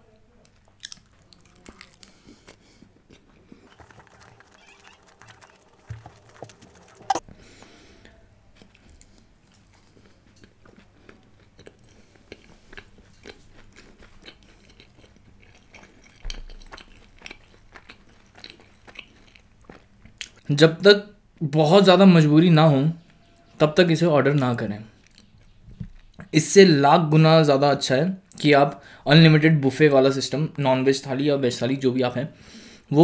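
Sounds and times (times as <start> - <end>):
person chewing food: 0.5 - 7.2, 8.6 - 20.5, 25.0 - 26.3
mouth clicks: 3.6 - 7.2.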